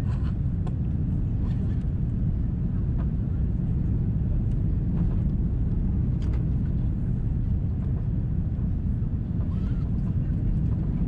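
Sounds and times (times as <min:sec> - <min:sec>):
jet engines: 0:00.0 - 0:11.0
low rumble of wheels on runway: 0:00.0 - 0:11.0
faint rattles of cabin fittings: 0:02.9 - 0:11.0.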